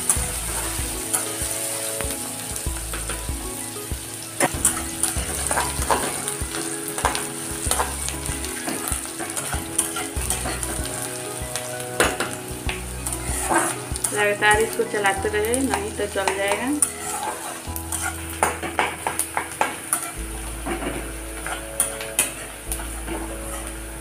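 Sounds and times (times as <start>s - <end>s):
onions sizzling in hot oil: 0.0s - 24.0s
spatula scraping metal pan: 13.0s - 15.1s, 15.7s - 23.9s.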